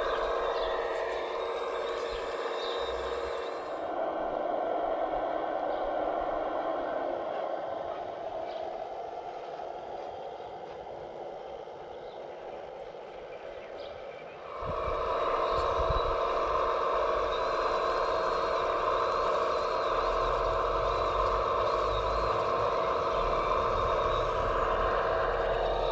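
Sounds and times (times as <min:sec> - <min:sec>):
electric motor whine: 0:00.0 - 0:04.0, 0:14.4 - 0:25.9.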